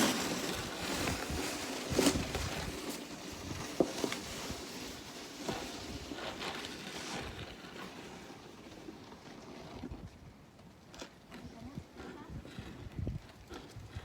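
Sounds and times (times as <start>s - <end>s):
wind on microphone: 11.5s - 14.0s.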